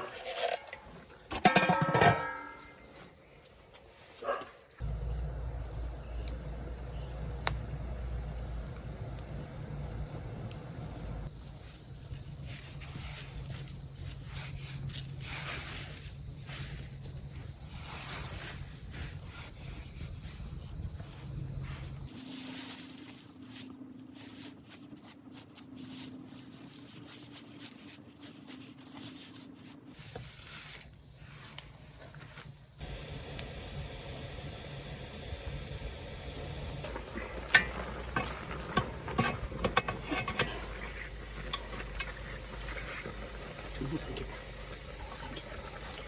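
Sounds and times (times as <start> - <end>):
fire crackling and popping: 4.8 - 22.1, 30.0 - 46.0
food hissing over wood fire: 4.8 - 27.5, 29.9 - 46.0.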